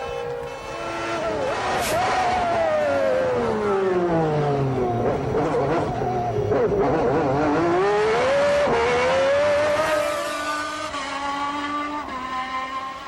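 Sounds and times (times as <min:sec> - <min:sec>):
racing car engine accelerating: 0:01.2 - 0:13.0.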